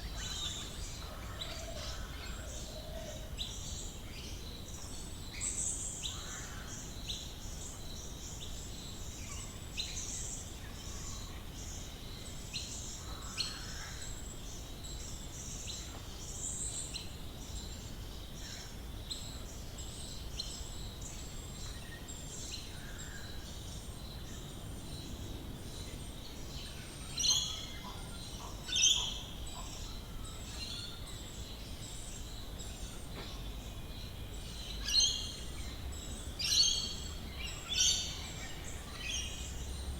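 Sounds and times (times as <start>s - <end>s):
birds chirping chorus: 9.8s - 39.9s.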